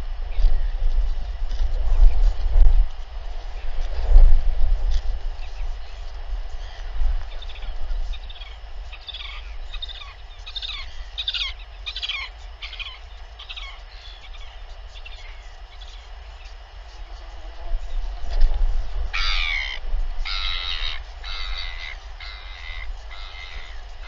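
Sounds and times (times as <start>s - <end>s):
wind rumble on microphone: 0.0s - 24.0s
bird chirping: 5.4s - 17.9s, 19.1s - 24.0s.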